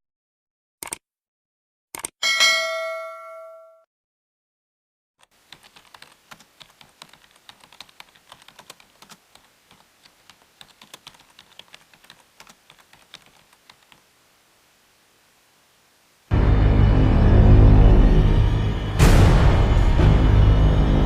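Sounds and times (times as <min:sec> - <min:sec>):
faint keyboard typing: 0:05.2 - 0:14.1.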